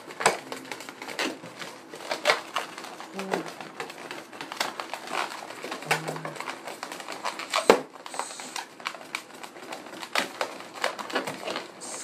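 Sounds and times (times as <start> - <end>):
balloon squeaking and rubbing: 5.0 - 8.7, 11.7 - 12.0.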